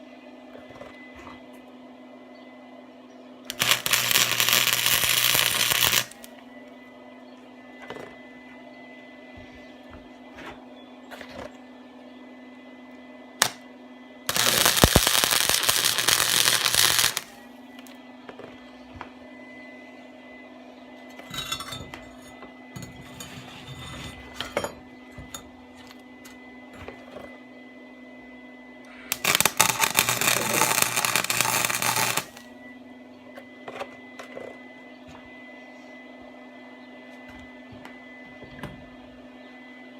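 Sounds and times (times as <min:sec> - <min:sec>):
electrical hum: 0:00.0 - 0:39.9
welding crackle: 0:03.5 - 0:06.3, 0:13.4 - 0:13.6, 0:14.3 - 0:17.4, 0:29.1 - 0:32.5.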